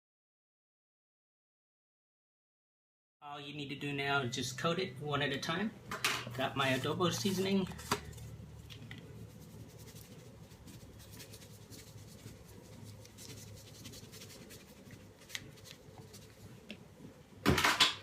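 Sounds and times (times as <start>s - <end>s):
low steady hum: 3.3s - 18.0s
hands rubbing seasoning onto meat: 6.6s - 16.6s.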